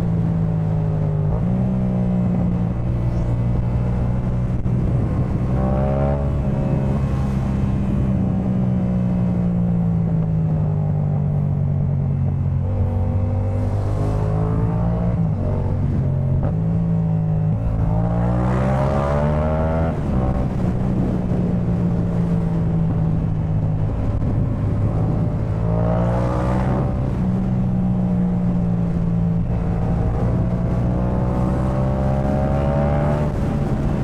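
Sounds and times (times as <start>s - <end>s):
motorcycle engine revving: 9.2s - 34.0s.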